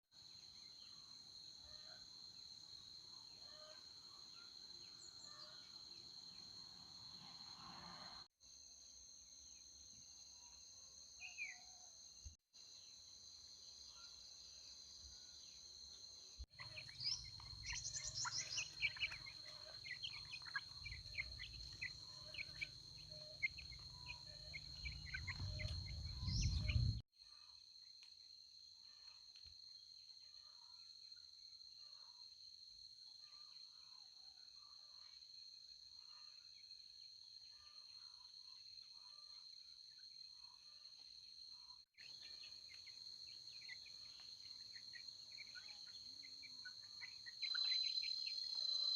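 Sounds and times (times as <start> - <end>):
birds chirping: 16.6 - 27.0
low rumble: 24.9 - 27.0.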